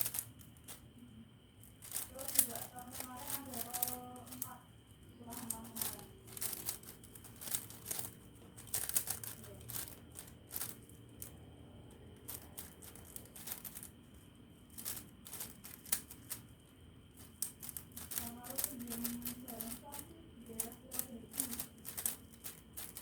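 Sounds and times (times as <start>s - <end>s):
puzzle cube plastic clicks: 0.0s - 0.8s, 1.7s - 4.6s, 5.3s - 11.4s, 12.2s - 14.0s, 14.7s - 16.5s, 17.1s - 23.0s.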